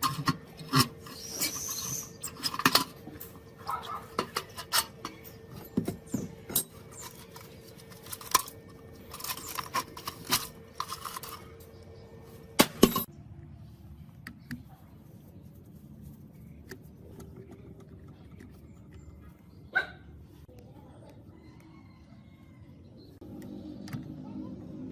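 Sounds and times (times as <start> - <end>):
metal tools clinking: 0.0 - 11.7, 12.6 - 13.1.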